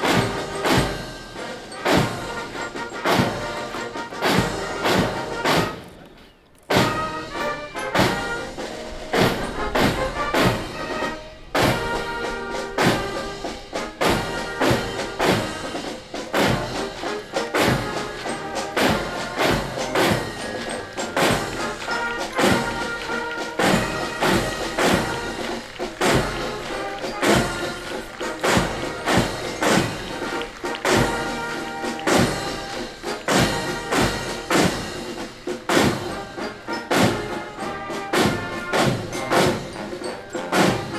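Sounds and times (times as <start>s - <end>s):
brass march music: 0.0s - 40.9s.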